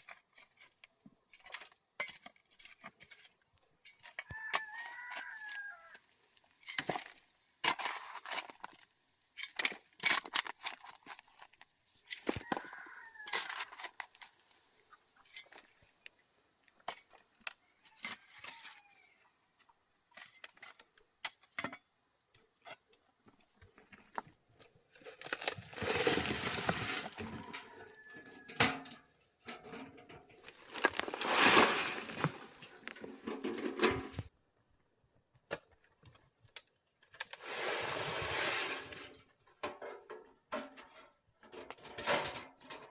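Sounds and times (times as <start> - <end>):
rough scraping: 24.9 - 28.8, 29.5 - 34.3, 37.2 - 39.2.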